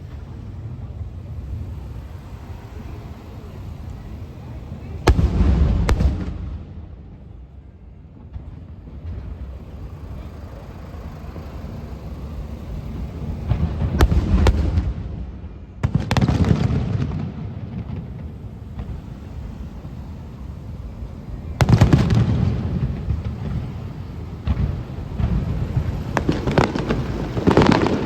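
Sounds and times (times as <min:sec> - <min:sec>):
firework shells bursting: 0:08.9 - 0:28.0.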